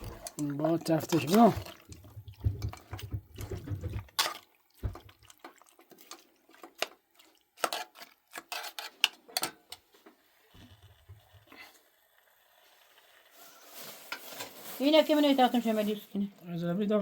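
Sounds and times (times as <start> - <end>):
pots and dishes clinking: 0.0 - 7.0, 7.6 - 9.8
running water: 0.0 - 7.8.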